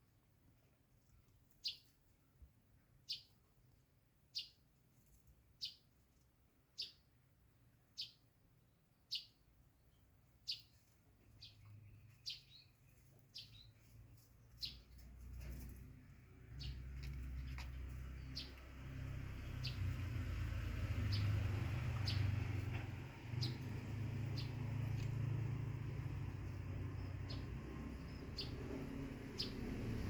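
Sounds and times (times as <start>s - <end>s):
bird chirping: 1.5s - 2.0s, 3.0s - 3.6s, 4.3s - 4.7s, 5.5s - 6.0s, 6.7s - 7.2s, 7.8s - 30.0s.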